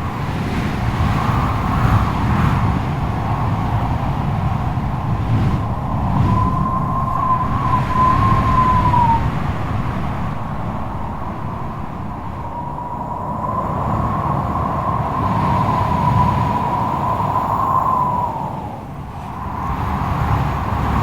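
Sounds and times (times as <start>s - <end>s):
strong wind howling: 0.0s - 21.0s
thin wavering whistle: 5.7s - 9.3s.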